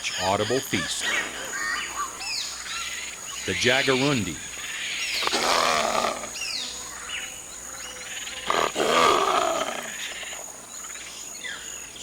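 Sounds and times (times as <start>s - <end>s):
high insect drone: 0.0s - 12.0s
wild cat growling: 5.1s - 6.5s, 8.4s - 10.5s.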